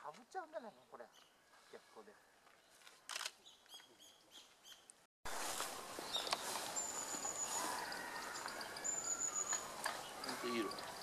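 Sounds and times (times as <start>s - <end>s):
woodland ambience hiss: 5.3s - 11.0s.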